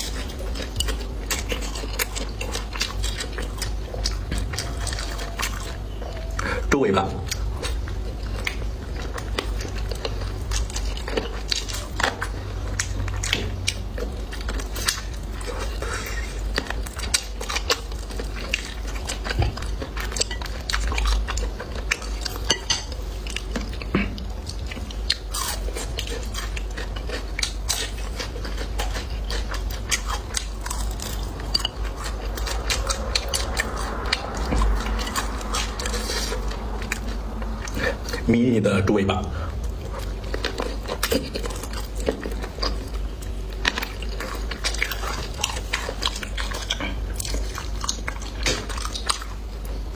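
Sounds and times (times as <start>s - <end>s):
biting and chewing: 0.0s - 38.4s, 39.5s - 49.9s.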